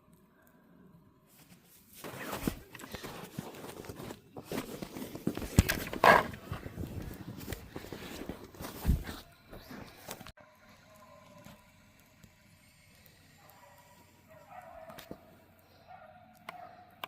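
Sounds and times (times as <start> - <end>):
footsteps crunching through snow: 1.3 - 10.3.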